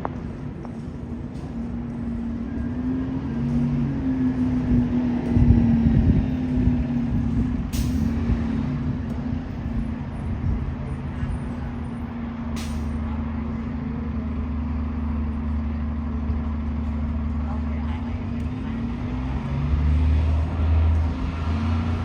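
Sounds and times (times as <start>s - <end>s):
bus engine humming: 0.0s - 22.0s
air brake hisses: 12.6s - 12.9s.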